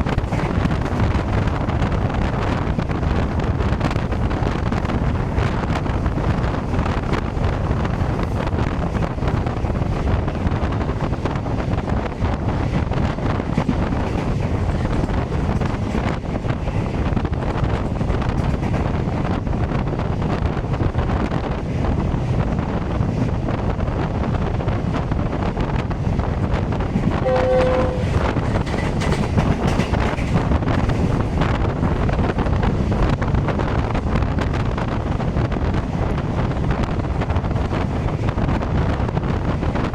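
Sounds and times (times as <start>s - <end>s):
train rumbling past: 0.0s - 39.9s
wind buffeting microphone: 0.0s - 39.9s
brief horn-like tone: 27.2s - 28.3s
wheels clattering over rail joints: 28.3s - 32.0s.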